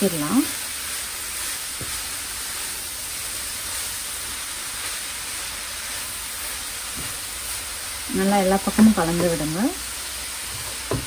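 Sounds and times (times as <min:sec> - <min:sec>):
carrots sizzling in a pan: 0:00.0 - 0:11.0
wooden spatula stirring: 0:00.9 - 0:02.6, 0:10.4 - 0:11.0.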